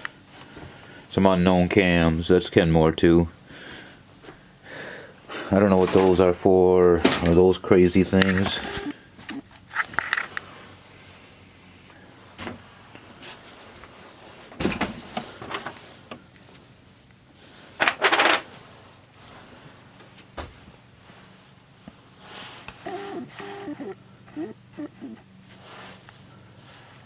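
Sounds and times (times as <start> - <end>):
small parts clicking and rattling: 9.7 - 10.4.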